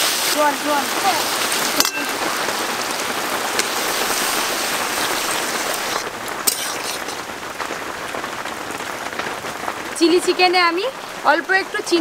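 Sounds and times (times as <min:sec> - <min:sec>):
vegetables sizzling in a wok: 0:00.0 - 0:08.6.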